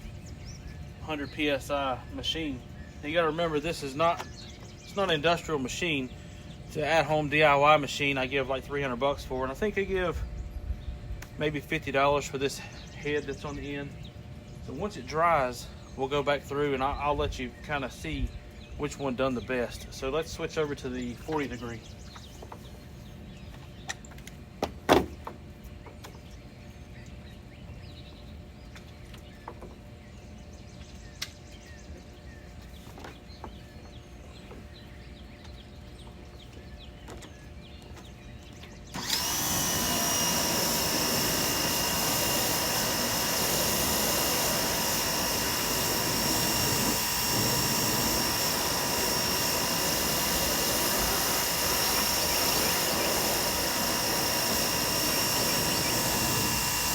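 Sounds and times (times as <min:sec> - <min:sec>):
pressure washer spraying: 0:39.0 - 0:56.9.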